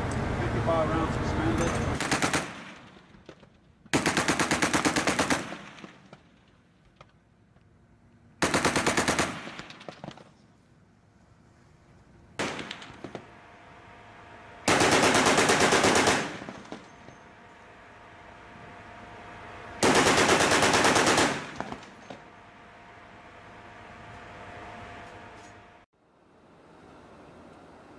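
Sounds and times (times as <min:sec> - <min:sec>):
machine gun firing bursts: 0:02.0 - 0:03.0, 0:03.9 - 0:06.3, 0:08.4 - 0:10.2, 0:12.4 - 0:13.3, 0:14.6 - 0:17.0, 0:19.8 - 0:22.0.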